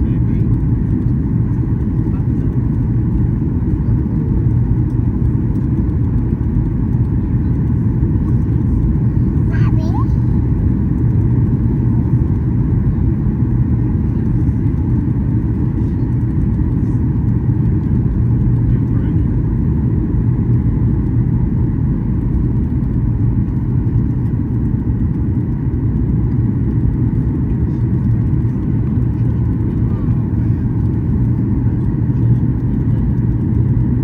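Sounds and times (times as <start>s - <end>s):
airplane cabin engine drone: 0.0s - 34.0s.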